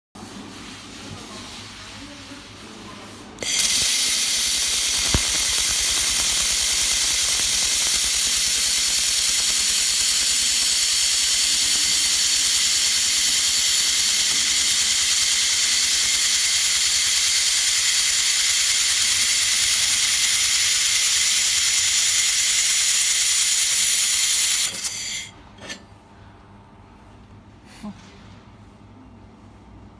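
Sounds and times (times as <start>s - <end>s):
welding machine hissing: 3.4s - 25.8s.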